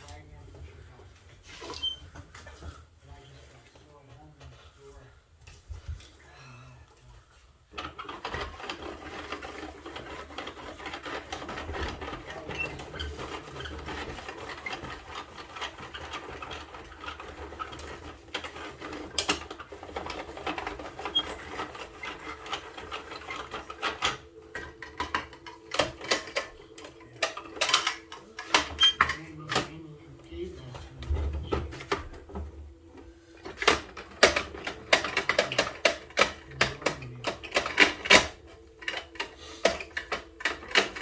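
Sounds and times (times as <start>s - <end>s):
toy truck plastic clicking and rattling: 7.7s - 29.8s, 30.9s - 41.0s.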